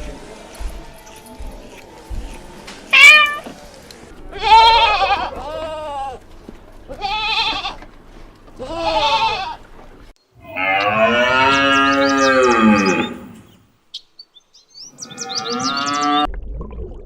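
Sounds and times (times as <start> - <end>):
small birds chirping: 0.0 - 16.1
goat bleating: 2.9 - 3.6, 4.2 - 9.7
cow mooing: 4.2 - 7.9, 10.4 - 13.5.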